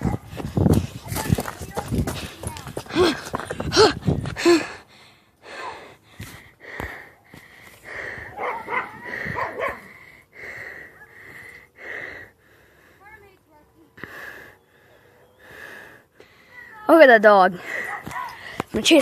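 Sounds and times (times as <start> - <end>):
dog barking and yipping: 0.0 - 0.3, 8.3 - 9.9, 17.8 - 18.4
heavy rhythmic breathing: 0.0 - 19.0
dog high calls: 8.3 - 9.9.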